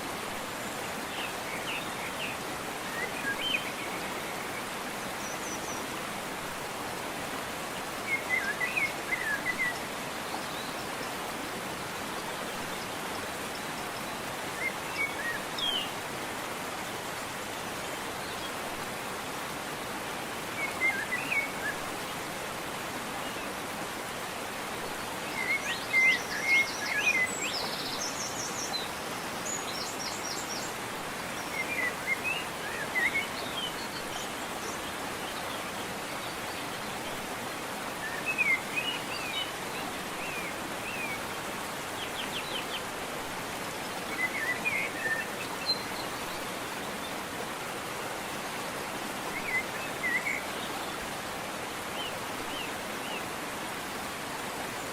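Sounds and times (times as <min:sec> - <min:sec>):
waterfall rushing: 0:00.0 - 0:54.9
birds singing: 0:07.9 - 0:16.0, 0:20.5 - 0:22.4, 0:24.3 - 0:54.8.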